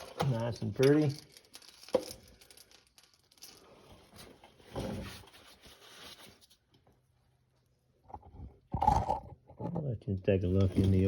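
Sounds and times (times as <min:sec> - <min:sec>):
rustling and handling of parts: 0:00.0 - 0:11.0.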